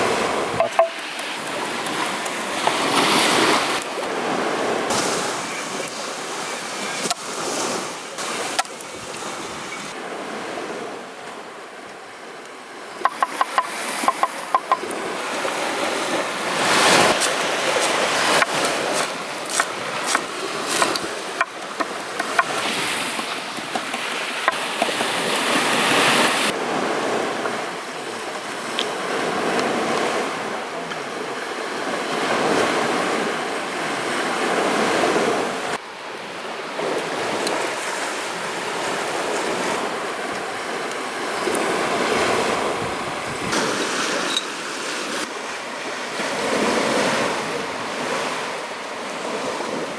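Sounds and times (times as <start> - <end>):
sea waves washing onto shore: 0.0 - 49.9
wind on microphone: 41.4 - 44.4.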